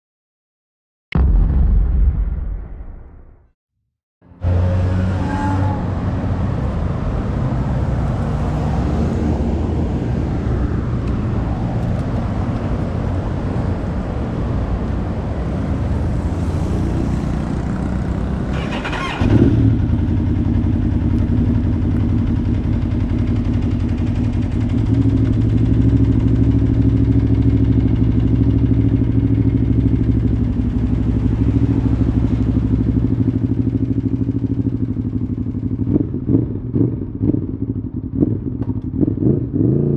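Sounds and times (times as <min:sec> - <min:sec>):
low rumble: 0:01.2 - 0:03.6
motorcycle engine starting and idling: 0:16.4 - 0:39.6.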